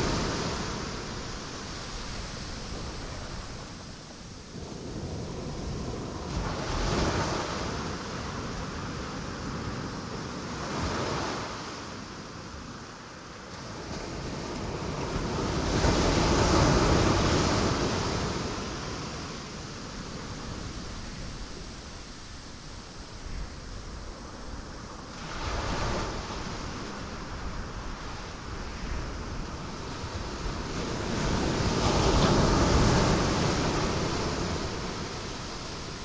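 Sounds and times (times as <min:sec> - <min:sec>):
ocean waves breaking on rocks: 0:23.6 - 0:36.0.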